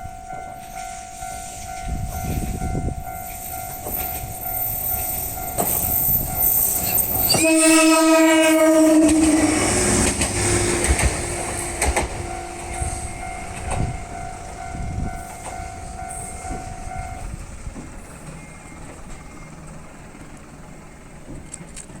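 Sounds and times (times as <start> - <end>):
train running: 0.0 - 22.0
train horn: 6.0 - 17.3
wheels knocking over rail joints: 7.2 - 14.0.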